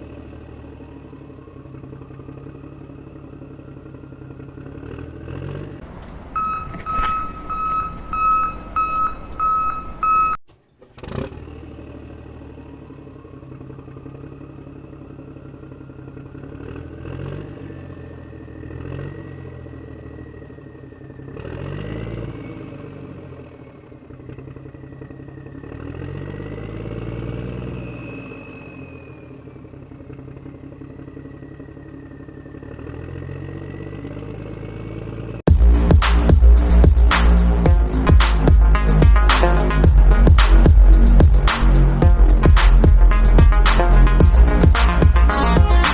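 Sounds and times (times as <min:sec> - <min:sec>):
vehicle engine running: 0:00.0 - 0:45.9
pulsing beep tone: 0:06.4 - 0:10.4, 0:37.7 - 0:45.9
whine: 0:35.5 - 0:45.9.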